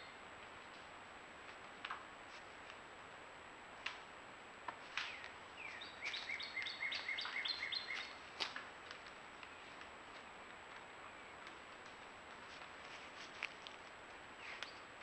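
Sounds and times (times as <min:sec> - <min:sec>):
background hiss: 0:00.0 - 0:15.0
bird singing: 0:05.0 - 0:08.2, 0:14.4 - 0:14.9.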